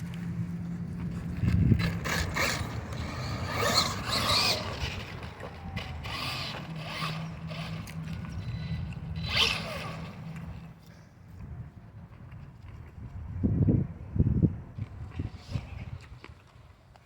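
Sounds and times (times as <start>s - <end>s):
toy truck motor whirring: 1.6s - 10.7s.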